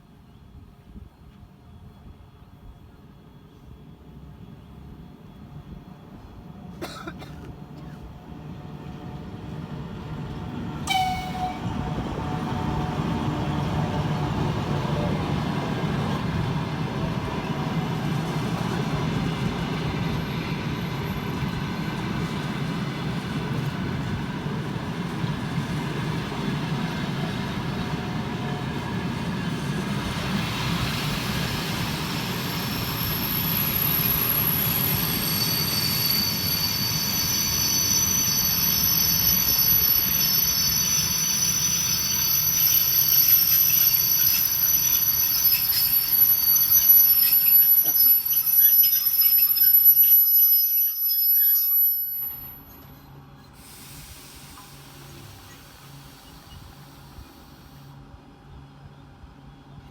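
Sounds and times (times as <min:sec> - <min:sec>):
train rumbling past: 0:00.0 - 0:59.9
train horn toot: 0:10.8 - 0:13.2
high wheel squeal: 0:32.2 - 0:53.1.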